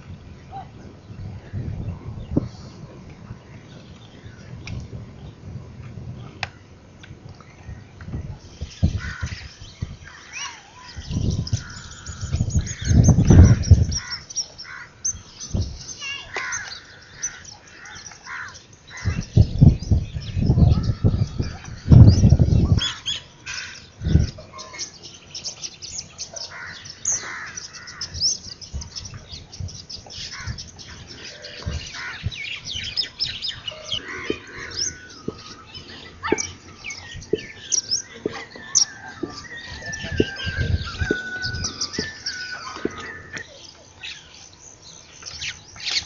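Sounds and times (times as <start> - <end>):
low rumble on microphone: 0.0 - 10.1, 10.9 - 14.3, 18.9 - 23.1, 23.9 - 24.6, 27.8 - 43.5
small birds chirping: 0.0 - 46.0.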